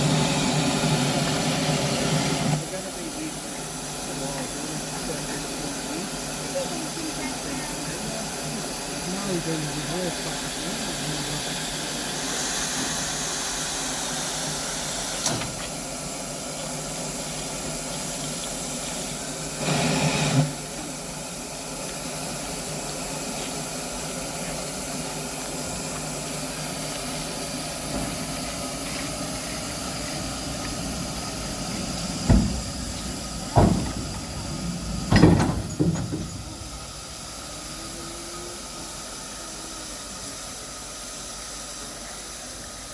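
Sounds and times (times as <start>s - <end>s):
steam hissing: 0.0s - 42.9s
sharp knocks: 32.1s - 36.9s.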